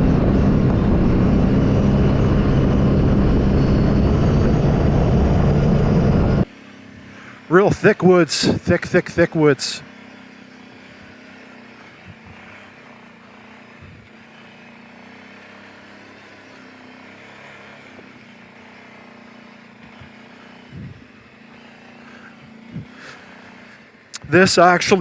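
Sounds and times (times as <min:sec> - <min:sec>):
atv engine running: 0:00.0 - 0:25.0.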